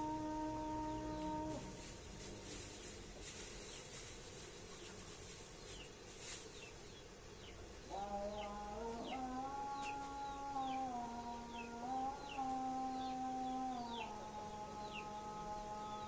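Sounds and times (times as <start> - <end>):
chicks cheeping: 0.9 - 16.0.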